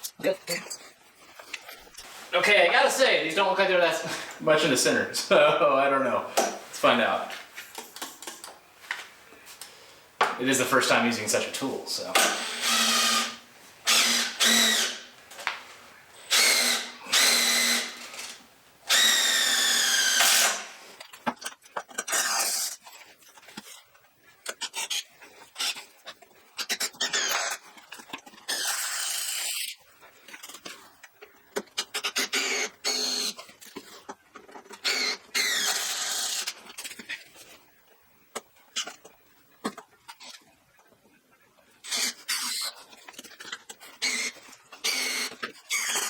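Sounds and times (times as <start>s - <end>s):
power drill motor whine: 12.2s - 15.1s, 16.3s - 20.7s.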